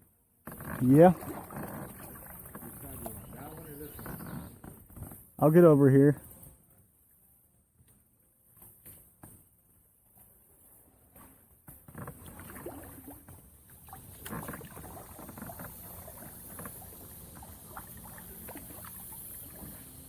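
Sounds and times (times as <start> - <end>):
paddle splashing: 0.4 - 5.6, 11.2 - 20.0
branches scraping against hull: 0.4 - 6.6, 10.1 - 20.0.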